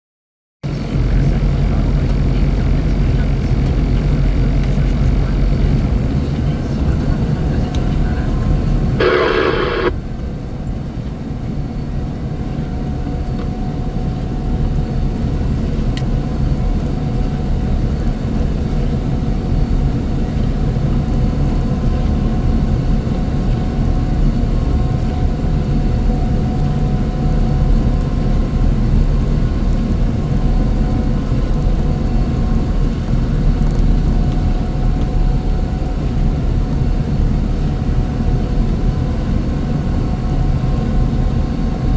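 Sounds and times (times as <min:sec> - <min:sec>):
heavy machine engine drone: 0:00.7 - 0:10.5
faint steady whine: 0:04.7 - 0:10.9.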